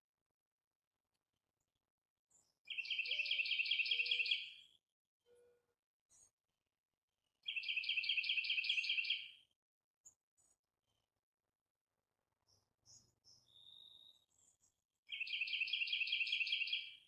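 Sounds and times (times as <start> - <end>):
songbird trilling: 2.7 - 4.5, 7.5 - 9.2, 15.1 - 17.0.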